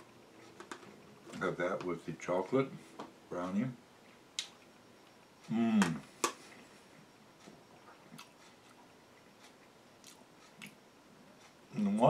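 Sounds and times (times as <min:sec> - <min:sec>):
man murmuring: 0:05.5 - 0:06.1
man chewing: 0:06.2 - 0:10.8.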